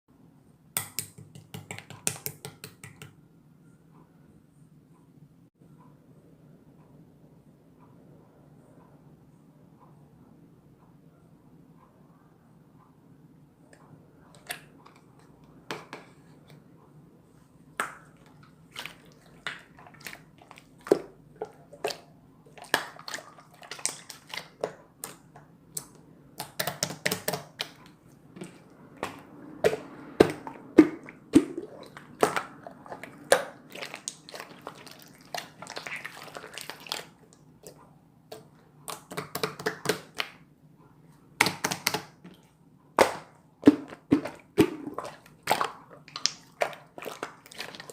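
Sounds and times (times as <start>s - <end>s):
slime squished by hand: 28.4s - 40.4s.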